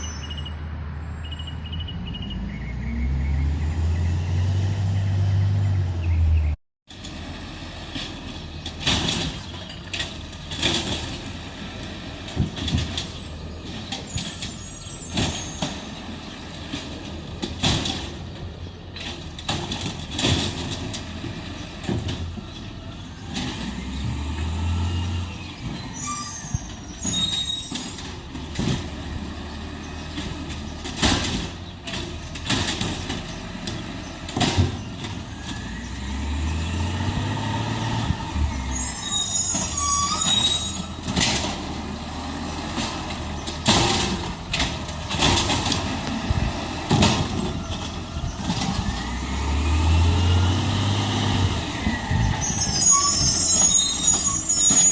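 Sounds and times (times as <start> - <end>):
air brakes squealing and hissing: 0.0 - 2.4, 13.9 - 15.9, 25.2 - 28.2, 37.0 - 41.4, 51.5 - 54.9
garbage truck engine revving: 2.0 - 54.9
sharp clanks and knocks: 7.8 - 23.8, 27.0 - 35.7, 39.5 - 42.0, 42.6 - 49.0.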